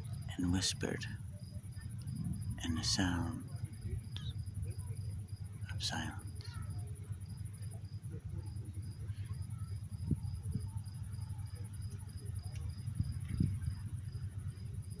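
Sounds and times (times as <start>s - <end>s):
steady low rumble: 0.0s - 9.1s
crickets chirping: 0.0s - 15.0s.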